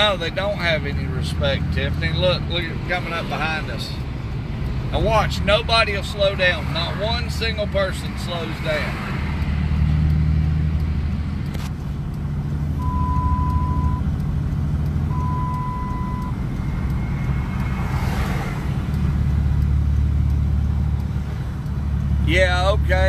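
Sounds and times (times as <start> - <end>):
vehicle engine running: 0.0 - 23.0
vehicle rushing past: 12.2 - 22.3
long beeps: 12.8 - 14.1, 15.1 - 18.1.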